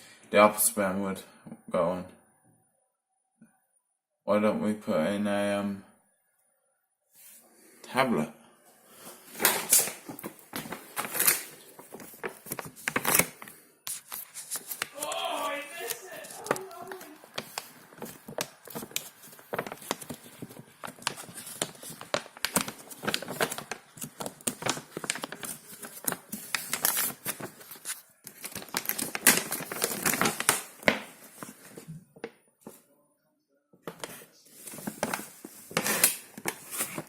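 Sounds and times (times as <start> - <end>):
plastic packaging crinkling and tearing: 9.3 - 31.8, 34.6 - 37.0.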